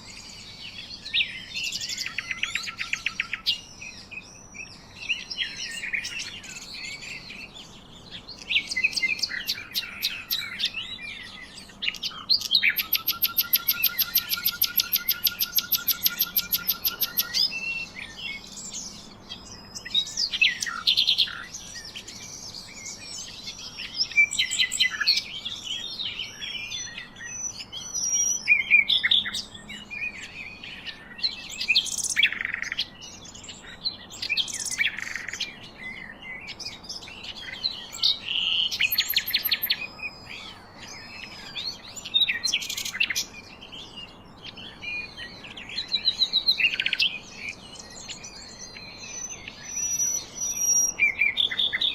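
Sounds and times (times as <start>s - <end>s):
songbirds chirping and singing: 0.0s - 51.9s
fast bird trill: 8.3s - 25.3s, 37.0s - 43.4s.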